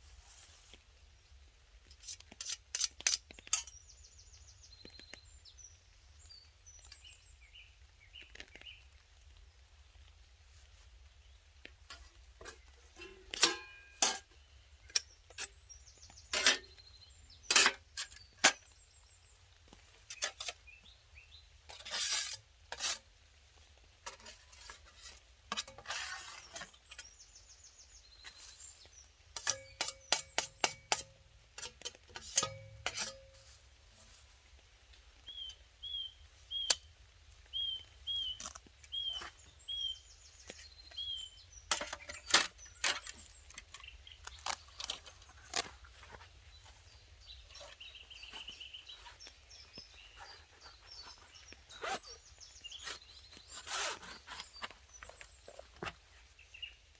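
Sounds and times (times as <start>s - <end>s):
metal cookware clinking and rattling: 12.4s - 14.4s, 29.4s - 33.5s
small bird chirping: 35.2s - 56.9s.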